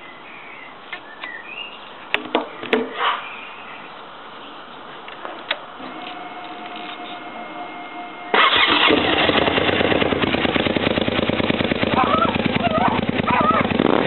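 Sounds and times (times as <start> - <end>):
faint steady whine: 5.6 - 8.4
motorcycle engine starting and running: 8.4 - 14.0.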